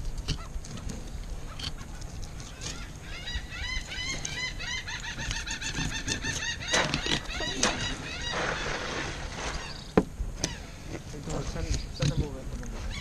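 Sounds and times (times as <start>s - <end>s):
bird chirping rapidly: 1.5s - 10.8s.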